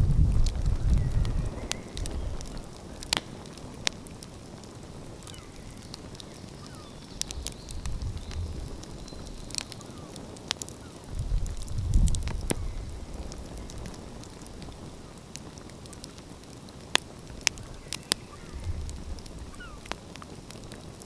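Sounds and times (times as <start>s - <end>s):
wood fire crackling: 0.0s - 21.0s
sharp pops: 0.3s - 4.3s.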